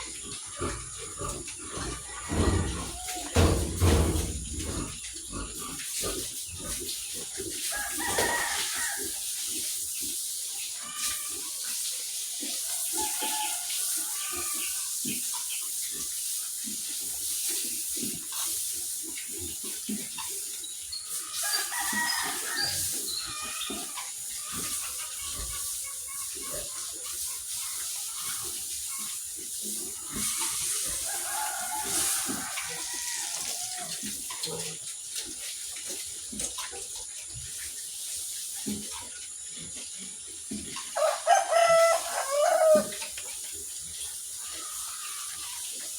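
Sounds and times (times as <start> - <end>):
chickens clucking: 0.0 - 9.0, 19.4 - 35.1, 38.7 - 43.4, 44.1 - 45.9
water running and splashing: 0.0 - 45.9.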